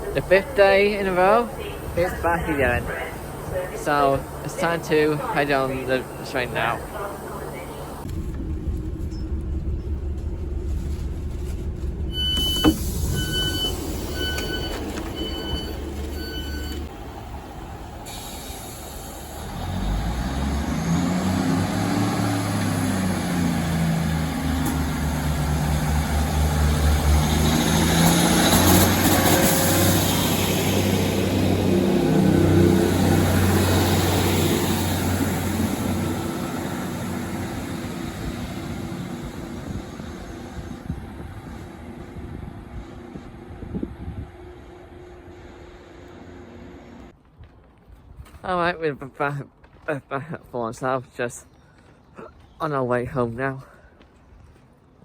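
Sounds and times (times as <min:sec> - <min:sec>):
train diesel engine: 0:00.0 - 0:47.2
train door-warning beeps: 0:12.1 - 0:16.9.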